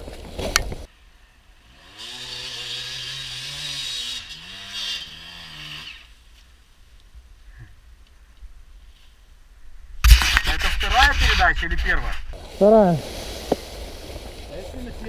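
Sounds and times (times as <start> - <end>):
motorcycle engine revving: 1.6 - 6.2.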